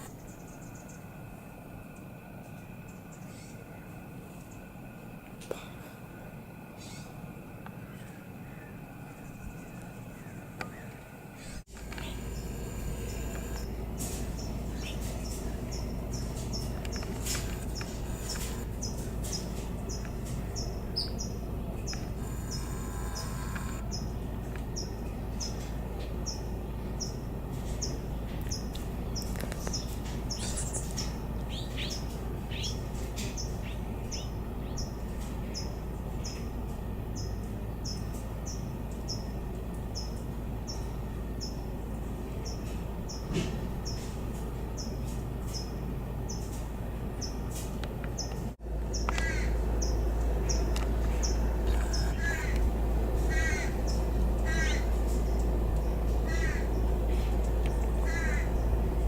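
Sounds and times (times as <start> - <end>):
songbird chirping: 7.8 - 35.0, 48.2 - 59.0
other bird calls: 10.1 - 24.1, 48.9 - 58.9.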